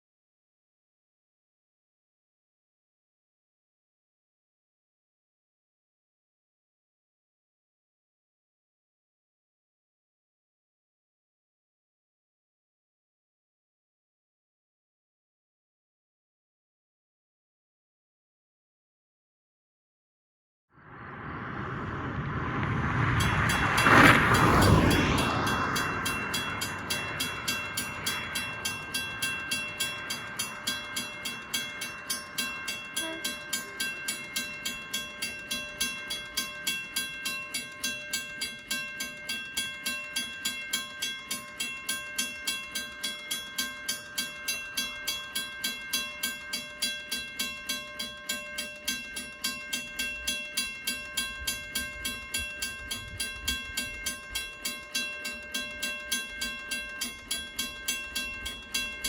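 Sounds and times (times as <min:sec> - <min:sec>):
train noise: 0:20.8 - 0:39.0
level crossing bell ringing: 0:23.3 - 0:59.0.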